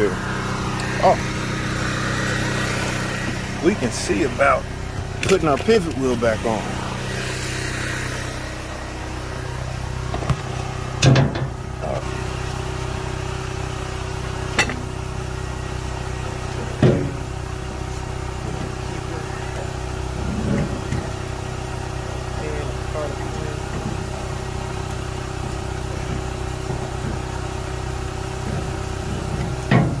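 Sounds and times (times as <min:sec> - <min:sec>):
engine running steadily: 0:00.0 - 0:30.0
sharp metal clanks: 0:14.5 - 0:14.9.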